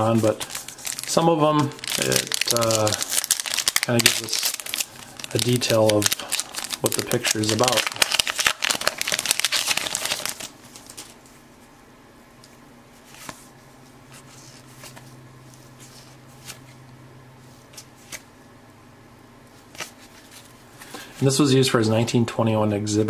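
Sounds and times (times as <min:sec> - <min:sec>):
cards rustling: 0:00.0 - 0:11.2, 0:19.7 - 0:21.3
wrapper crinkling: 0:00.0 - 0:11.2.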